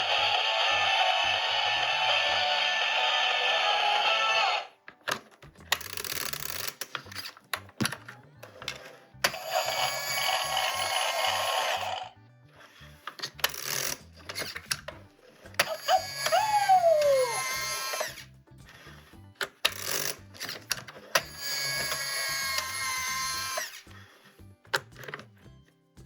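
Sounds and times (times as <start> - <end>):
toy electronic sound effects: 0.0 - 4.8, 8.4 - 12.2, 15.6 - 18.3, 19.0 - 23.8.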